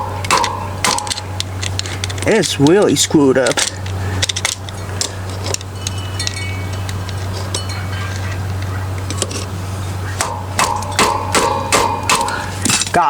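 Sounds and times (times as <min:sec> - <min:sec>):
metal tool clinking and scraping: 0:00.0 - 0:09.5, 0:10.6 - 0:13.0
steady low hum: 0:00.0 - 0:13.0
metallic ringing tings: 0:05.6 - 0:08.3, 0:10.2 - 0:12.6.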